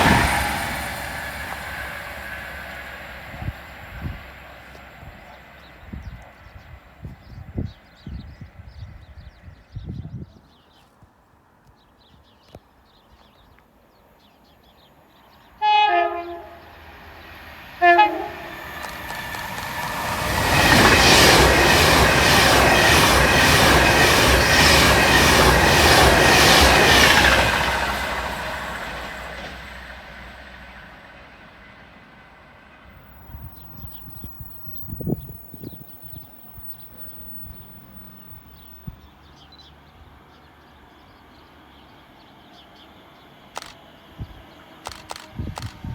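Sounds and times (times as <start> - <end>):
two-tone train horn: 15.6 - 17.0, 17.8 - 18.8
train wheels clattering: 18.2 - 30.1.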